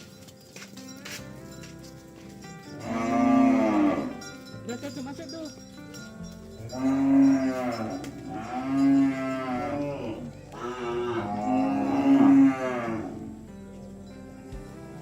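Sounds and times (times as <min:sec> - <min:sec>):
cattle mooing: 0:02.8 - 0:04.2, 0:06.7 - 0:13.4.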